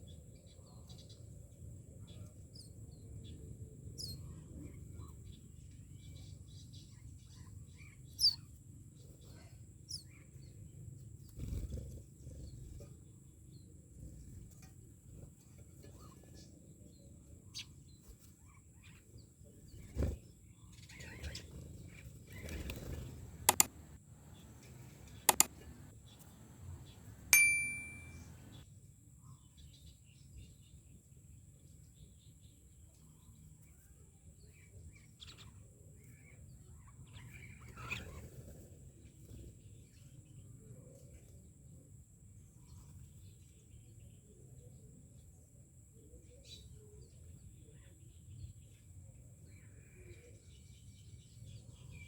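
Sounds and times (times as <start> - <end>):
faint bird chirps: 0.0 - 12.9, 15.5 - 28.6
sharp clicks: 23.2 - 24.0, 24.6 - 28.6
loud metallic ding: 27.4 - 28.4.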